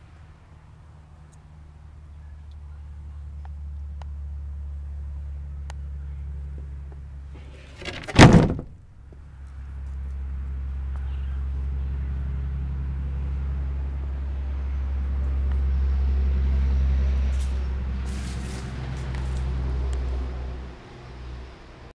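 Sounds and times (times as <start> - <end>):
electric utility truck rumbling: 3.6 - 21.9
loud knock: 7.8 - 8.8.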